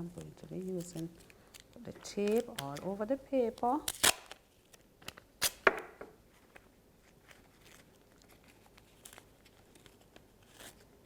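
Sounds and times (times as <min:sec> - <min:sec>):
faint tape and paper handling: 0:00.0 - 0:05.3, 0:06.3 - 0:11.0
adhesive tape ripping: 0:00.2 - 0:05.8.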